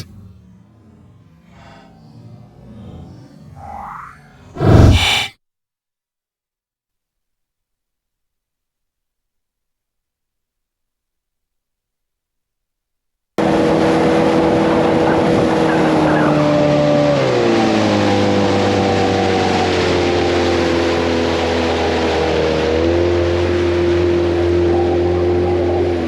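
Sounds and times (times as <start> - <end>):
motorboat engine running: 13.4 - 26.0.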